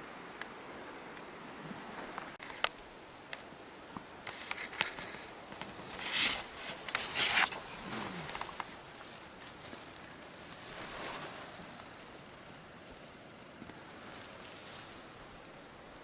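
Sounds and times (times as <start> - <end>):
leaves brushing against clothing: 4.2 - 15.7
branch swishes: 5.6 - 8.8.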